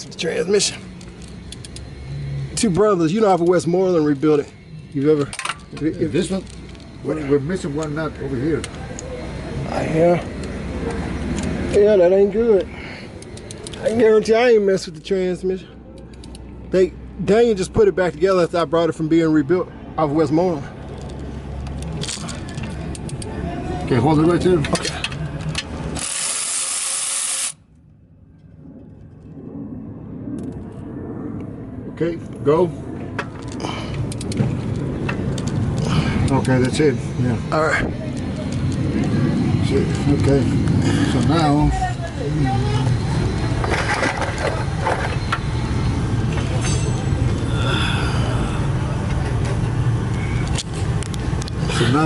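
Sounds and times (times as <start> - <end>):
loud hiss: 26.0 - 27.6.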